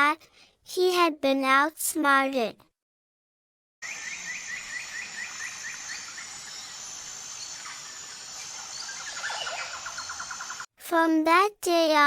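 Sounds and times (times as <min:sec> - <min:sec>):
birds chirping: 0:03.8 - 0:10.7
high insect drone: 0:03.8 - 0:10.7.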